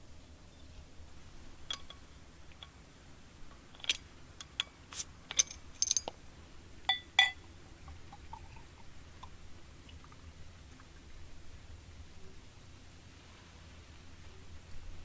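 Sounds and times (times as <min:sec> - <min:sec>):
tableware clicking and tapping: 0:01.7 - 0:02.1, 0:03.8 - 0:06.2, 0:06.9 - 0:07.4
ringing clinks: 0:05.3 - 0:06.1, 0:06.9 - 0:07.4.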